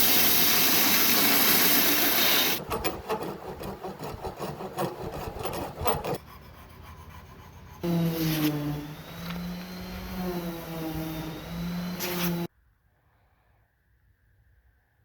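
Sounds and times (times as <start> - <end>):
power tool hiss: 0.0 - 2.6, 7.8 - 12.5
file rubbing on wood: 2.2 - 12.5
motor hum: 2.6 - 12.5.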